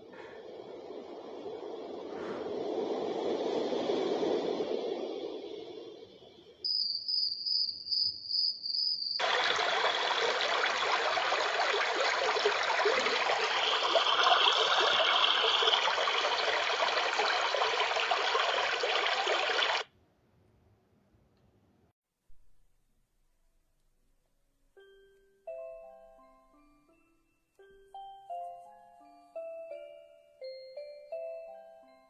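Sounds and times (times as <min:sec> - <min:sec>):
high pulsing chirp: 0:05.9 - 0:09.2
running water stream sound: 0:09.2 - 0:19.9.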